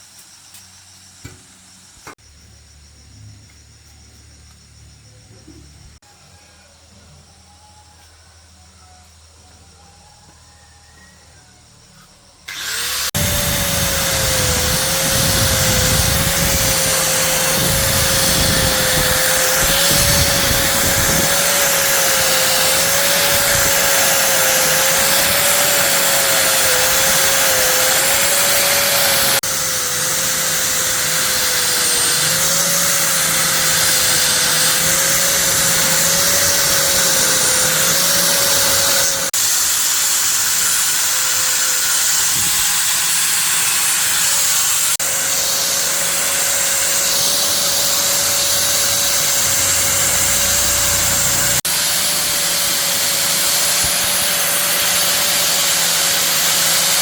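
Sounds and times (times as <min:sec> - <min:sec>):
workshop machine whining: 0:12.4 - 0:57.0.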